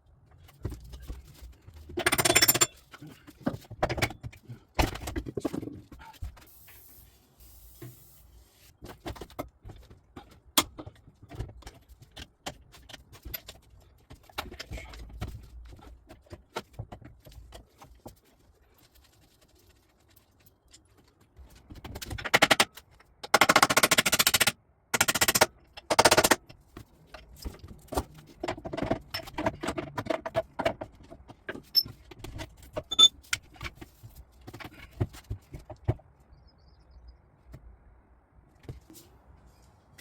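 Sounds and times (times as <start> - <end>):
impact wrench hammering: 2.0 - 2.7, 23.3 - 26.4
metal tools clinking: 2.0 - 3.2, 32.8 - 33.1.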